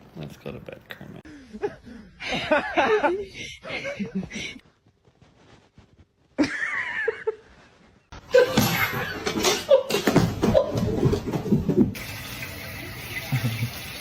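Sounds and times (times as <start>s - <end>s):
person laughing loudly: 6.4s - 7.4s.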